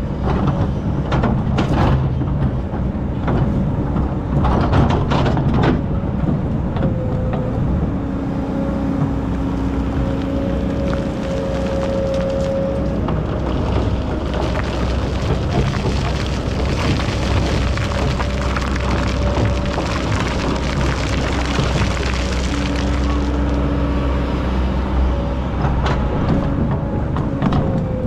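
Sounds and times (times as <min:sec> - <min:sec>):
excavator diesel engine: 0:00.0 - 0:28.0
sand and stones rattling: 0:09.6 - 0:23.6.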